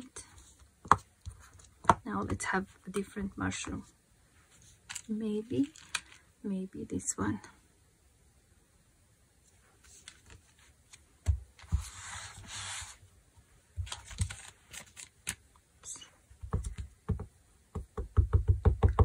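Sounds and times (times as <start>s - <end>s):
handling clicks and rustle: 4.6s - 6.2s, 13.8s - 15.5s.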